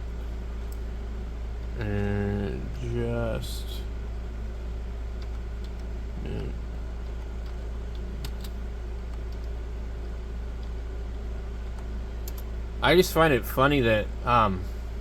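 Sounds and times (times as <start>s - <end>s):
steady low hum: 0.0s - 15.0s
computer keyboard clicks: 5.2s - 5.9s, 7.0s - 9.6s, 11.6s - 12.5s.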